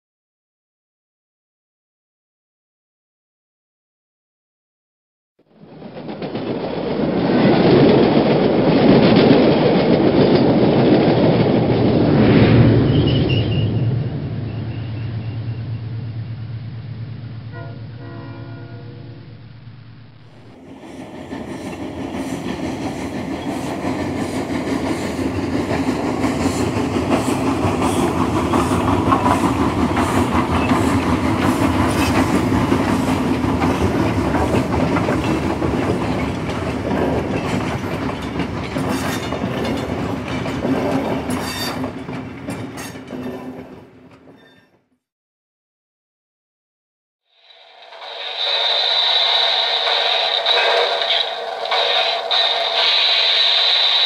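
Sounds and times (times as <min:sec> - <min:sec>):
train wheels clattering on rails: 0:05.6 - 0:12.3, 0:20.3 - 0:44.8, 0:47.5 - 0:54.0
low hum: 0:11.9 - 0:20.7.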